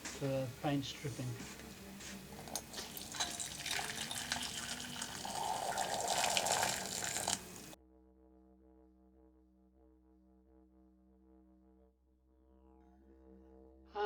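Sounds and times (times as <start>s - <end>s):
water boiling and bubbling: 2.4s - 7.8s.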